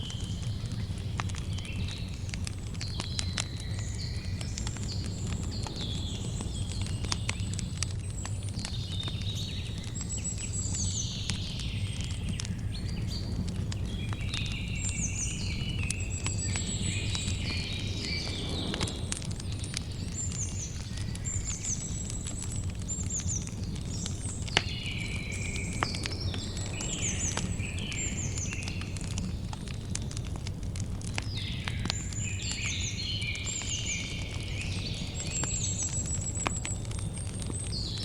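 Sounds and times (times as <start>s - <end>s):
campfire crackling and popping: 0.0s - 38.0s
birds chirping: 8.7s - 29.6s
low steady rumble: 15.6s - 20.9s.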